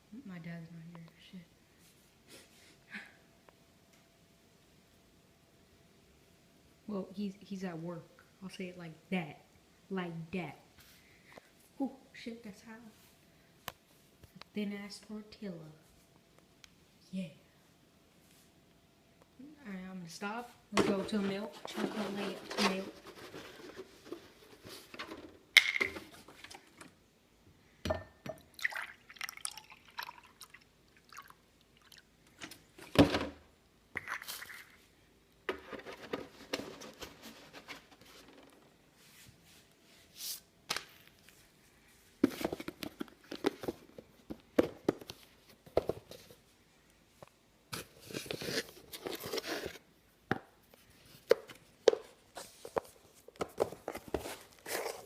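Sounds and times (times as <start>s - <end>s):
kitchen containers clattering: 20.8s - 26.8s
milk pouring into a glass: 28.4s - 32.1s.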